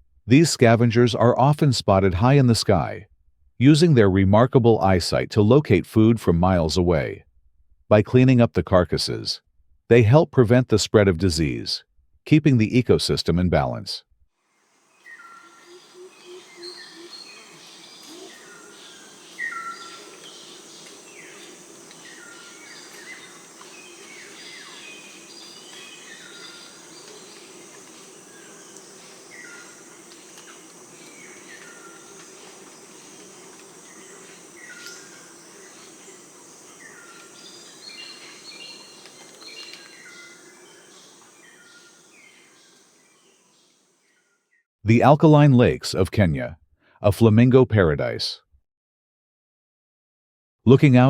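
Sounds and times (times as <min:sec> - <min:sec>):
bird chirping downward: 0:15.0 - 0:32.3.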